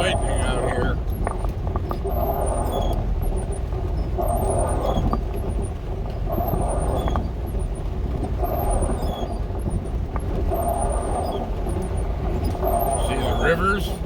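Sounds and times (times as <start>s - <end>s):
van engine and road rumble: 0.0s - 14.0s.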